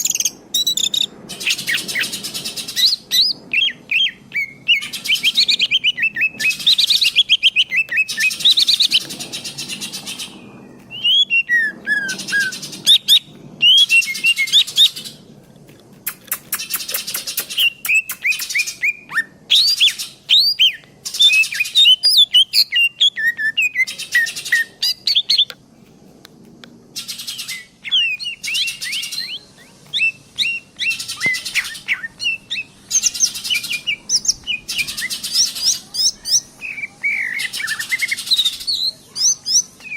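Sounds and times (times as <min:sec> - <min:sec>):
songbird singing chirps and trills: 0:00.0 - 0:39.9.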